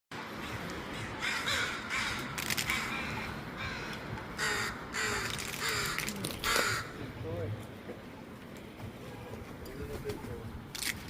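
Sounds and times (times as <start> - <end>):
crows cawing: 0.4 - 7.2.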